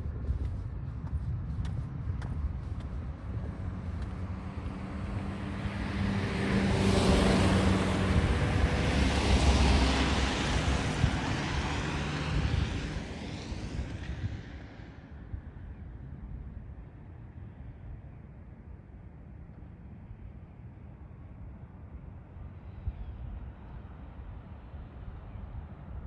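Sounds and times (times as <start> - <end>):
car driving past: 4.3 - 13.7.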